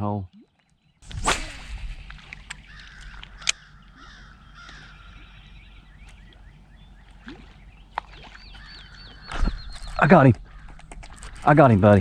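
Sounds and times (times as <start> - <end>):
birds calling: 0.8 - 12.0
sharp clicks: 1.0 - 5.2.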